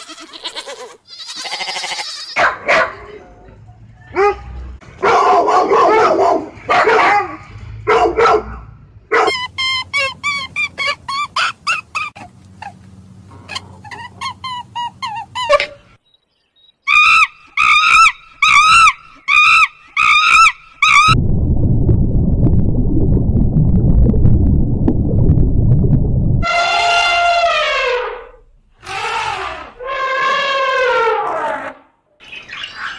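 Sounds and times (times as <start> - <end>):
dog high-pitched calls: 9.2 - 12.8
dog squeals: 9.3 - 12.3, 16.9 - 21.1.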